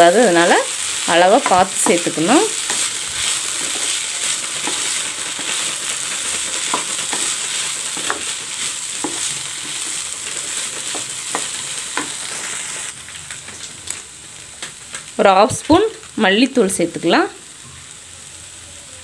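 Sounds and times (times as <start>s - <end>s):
vegetables sizzling in oil: 0.0s - 19.0s
spatula knocking and scraping pan: 1.3s - 4.0s, 4.6s - 12.2s.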